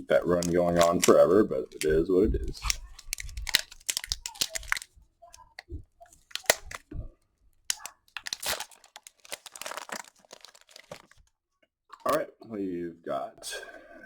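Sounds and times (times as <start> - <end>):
foil wrapper crinkling and tearing: 0.2 - 1.9, 2.5 - 4.9, 6.2 - 6.8, 7.7 - 11.2.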